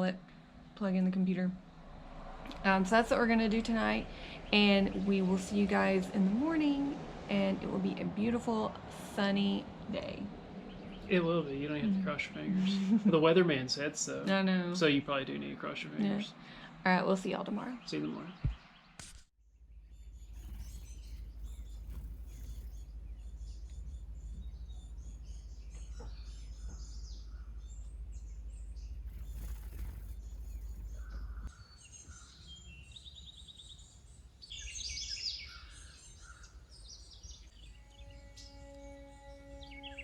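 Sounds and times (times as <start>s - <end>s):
steady low rumble: 0.0s - 14.2s, 19.4s - 40.0s
birds chirping and singing: 9.6s - 13.0s, 19.7s - 40.0s.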